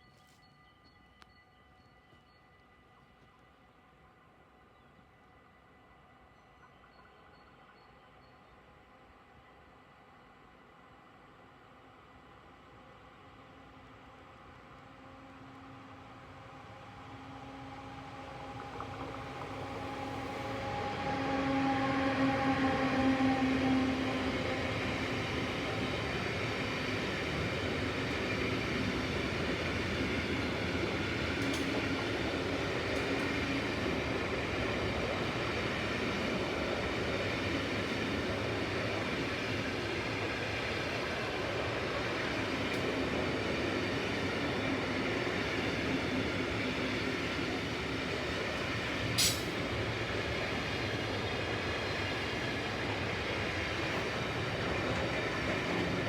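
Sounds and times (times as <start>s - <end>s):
freight train wheels rumbling: 16.4s - 56.0s.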